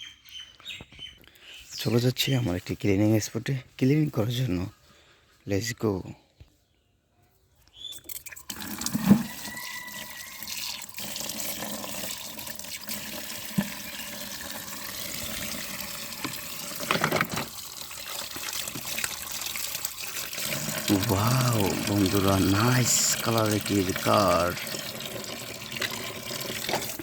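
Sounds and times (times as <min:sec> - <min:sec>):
tap water running and splashing: 0:08.1 - 0:27.0.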